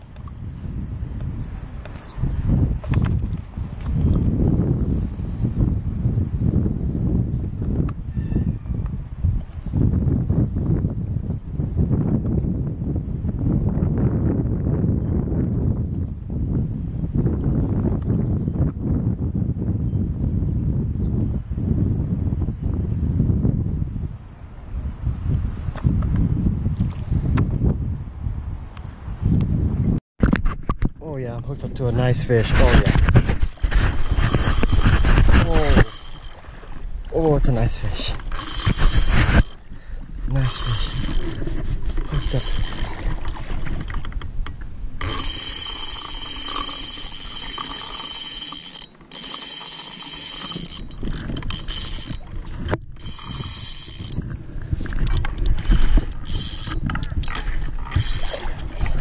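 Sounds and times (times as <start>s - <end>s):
fishing reel drag buzzing: 0.0s - 11.3s, 32.2s - 43.9s, 44.9s - 59.0s
insects trilling: 0.0s - 30.0s, 31.5s - 59.0s.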